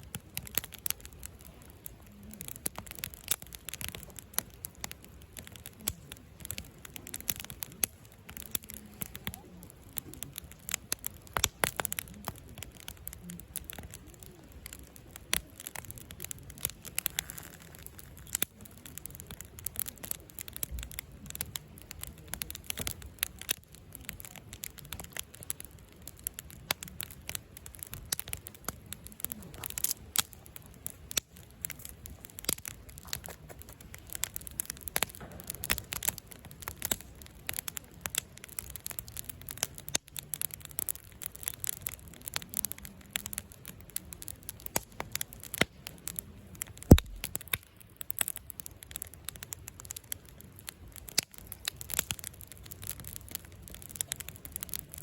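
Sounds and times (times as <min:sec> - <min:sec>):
campfire crackling: 0:00.0 - 0:55.0
sharp loud fire pop: 0:46.9 - 0:47.4.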